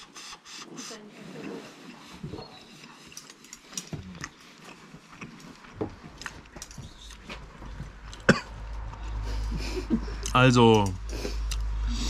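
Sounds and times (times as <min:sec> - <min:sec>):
man chewing: 0:01.6 - 0:12.0.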